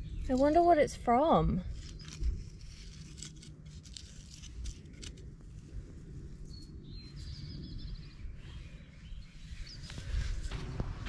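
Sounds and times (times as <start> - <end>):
pine needles and bone rustling: 0.0 - 7.4
low wind rumble: 0.0 - 11.0
songbird trill: 6.4 - 10.3.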